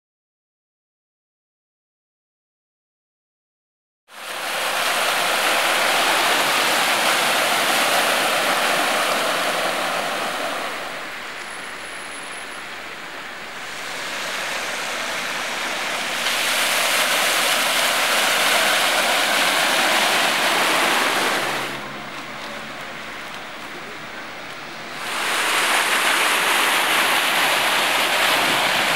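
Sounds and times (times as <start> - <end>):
rushing water from heavy downpour: 4.1 - 28.9.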